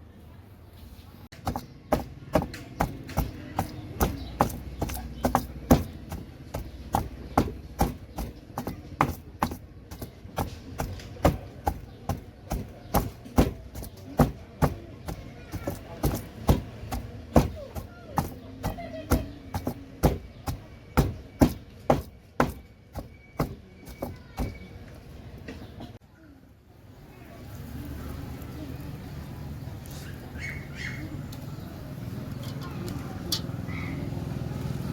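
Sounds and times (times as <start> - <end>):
sharp rhythmic knocks or chops: 1.4 - 24.6.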